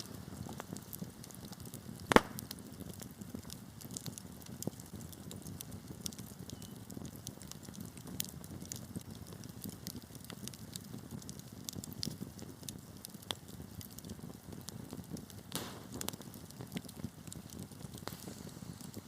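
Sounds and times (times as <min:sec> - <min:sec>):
crackles and pops of burning wood: 0:00.0 - 0:19.0
wood fire burning: 0:00.0 - 0:19.0
hissing flare: 0:15.5 - 0:16.4.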